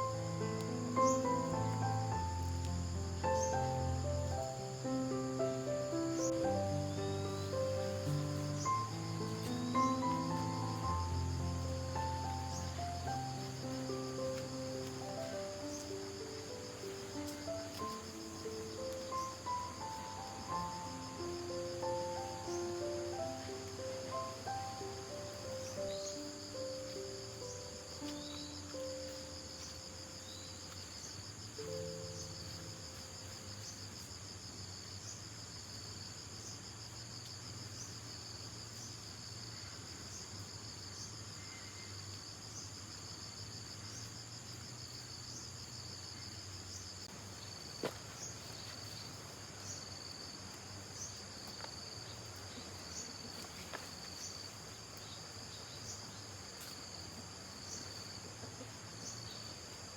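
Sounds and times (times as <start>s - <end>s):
faint musical notes: 0.0s - 30.8s
insect chorus trilling: 0.0s - 59.9s.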